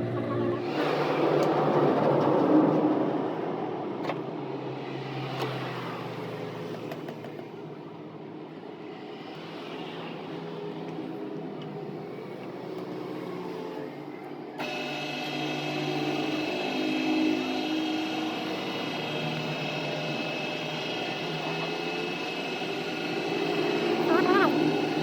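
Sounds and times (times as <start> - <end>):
machine humming: 14.6 - 25.0.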